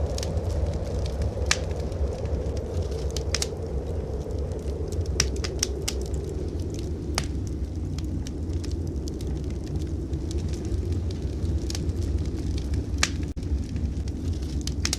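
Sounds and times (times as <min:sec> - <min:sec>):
sharp pops of fire: 0:00.0 - 0:03.5, 0:04.9 - 0:08.6, 0:11.4 - 0:14.9
low rumble of blizzard wind: 0:00.0 - 0:14.9
wood fire crackling: 0:00.0 - 0:14.9.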